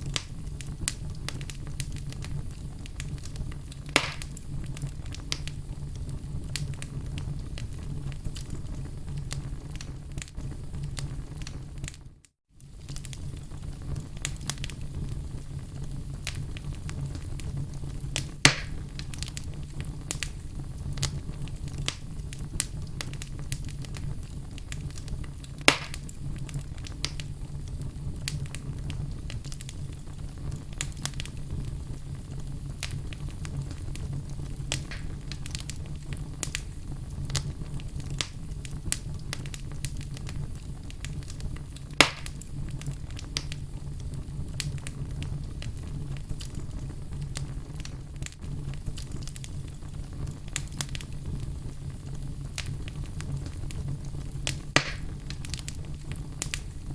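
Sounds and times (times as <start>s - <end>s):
logs popping: 0.0s - 5.6s, 18.2s - 20.3s, 21.0s - 27.3s, 32.8s - 36.6s, 41.1s - 43.6s, 54.4s - 56.6s
wood fire crackling: 0.0s - 56.9s.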